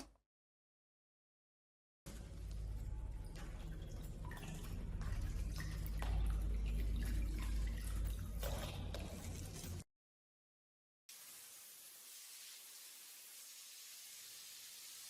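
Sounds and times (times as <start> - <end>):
liquid dripping: 2.1 - 9.8
low hum: 2.1 - 9.8.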